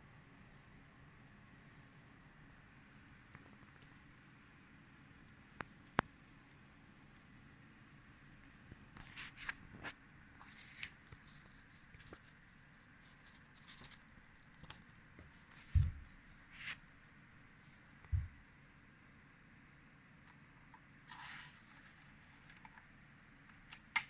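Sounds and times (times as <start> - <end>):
faint rustling and clicking: 8.4 - 16.9.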